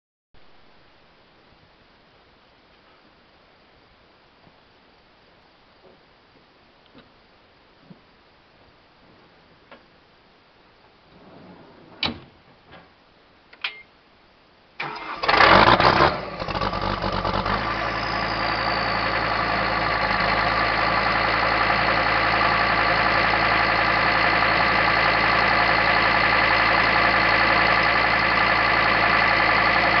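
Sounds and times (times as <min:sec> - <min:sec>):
diesel engine starting and idling: 0:14.8 - 0:30.0.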